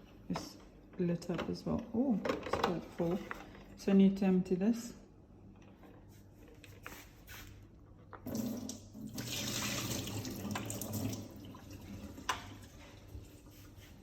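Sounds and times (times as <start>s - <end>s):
water splashing into a sink: 8.2s - 12.8s.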